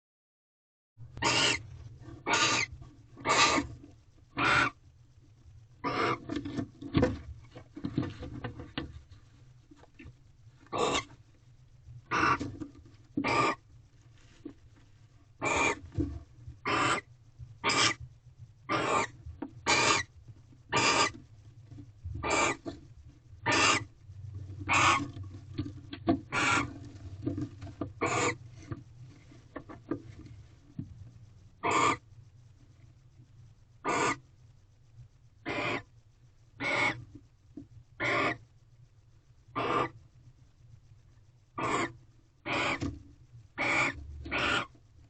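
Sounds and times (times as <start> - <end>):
low electrical hum: 1.0 - 45.0
owls giving harsh hissing calls: 1.2 - 1.6, 2.2 - 3.7, 4.4 - 4.8, 5.8 - 6.3, 10.7 - 11.1, 12.1 - 12.5, 13.2 - 13.6, 15.4 - 15.8, 16.6 - 18.0, 18.7 - 20.1, 20.7 - 21.1, 22.2 - 22.6, 23.4 - 23.9, 24.7 - 25.1, 26.3 - 26.7, 28.0 - 28.4, 31.6 - 32.1, 33.8 - 34.2, 35.4 - 35.9, 36.6 - 37.0, 38.0 - 38.4, 39.6 - 40.0, 41.6 - 42.8, 43.6 - 44.7.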